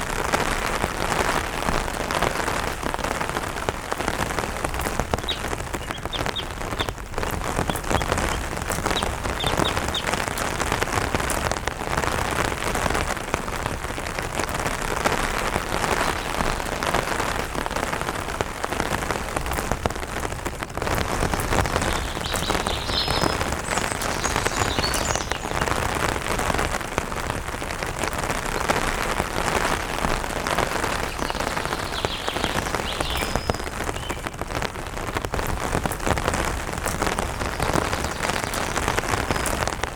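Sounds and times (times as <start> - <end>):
rain pattering on an umbrella: 0.0 - 39.9
bird chirps: 5.0 - 10.5, 21.6 - 25.7, 31.0 - 34.3.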